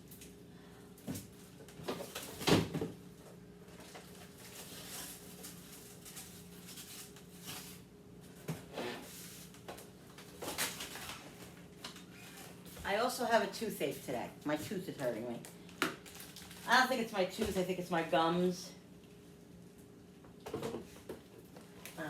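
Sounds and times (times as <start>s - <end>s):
food packages being handled: 3.7s - 7.9s, 9.1s - 12.7s, 15.8s - 16.8s.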